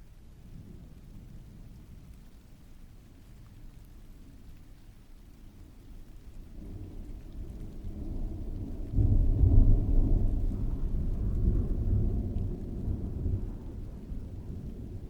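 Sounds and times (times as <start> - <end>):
steady rain falling: 0.0 - 15.0
thunder rumbling: 5.3 - 15.0.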